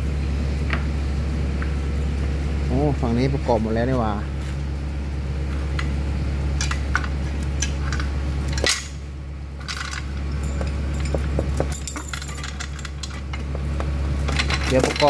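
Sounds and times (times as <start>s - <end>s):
steady low hum: 0.0s - 15.0s
metal tools clinking and rattling: 6.6s - 9.0s, 9.6s - 15.0s.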